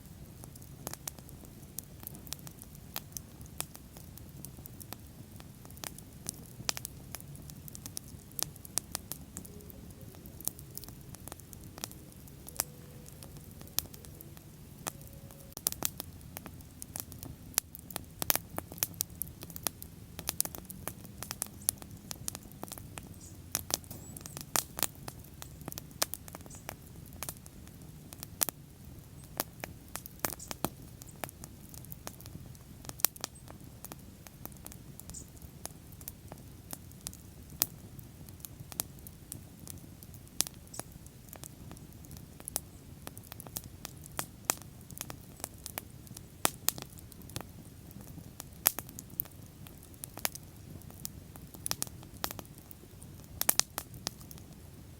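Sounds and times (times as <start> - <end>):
bonfire crackling and popping: 0.0 - 54.9
low steady rumble: 5.2 - 26.0.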